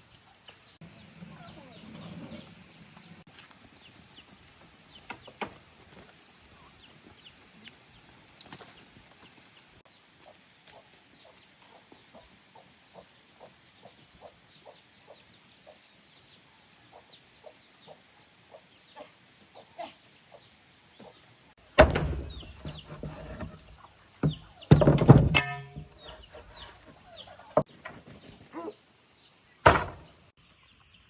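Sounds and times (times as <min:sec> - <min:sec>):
sharp knocks: 0:21.8 - 0:26.8, 0:29.7 - 0:30.1.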